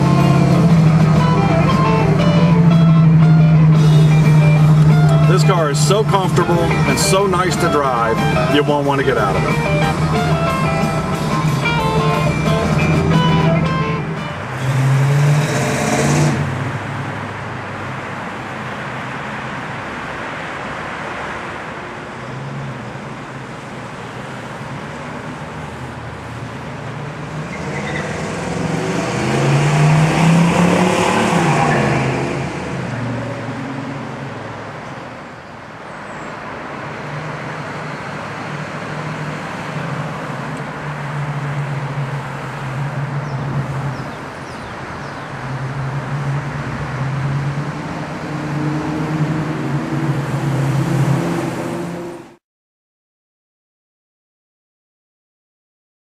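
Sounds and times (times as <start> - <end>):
car engine accelerating: 0.0 - 18.0, 25.6 - 34.7, 36.5 - 52.4
road noise: 0.0 - 52.4.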